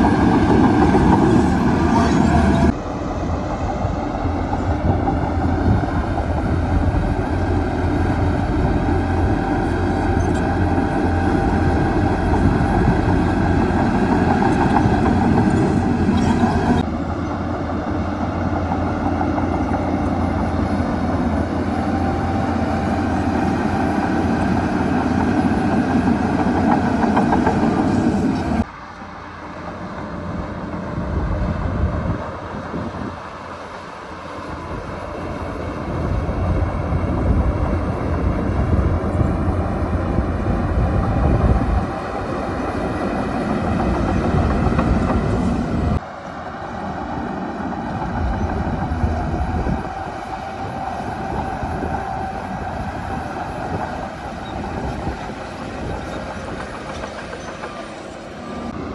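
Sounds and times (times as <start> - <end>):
diesel machinery rumbling: 0.0 - 58.9.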